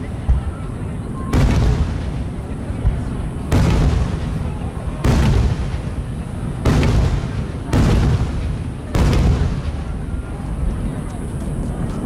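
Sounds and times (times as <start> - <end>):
firework shells bursting: 2.9 - 9.9.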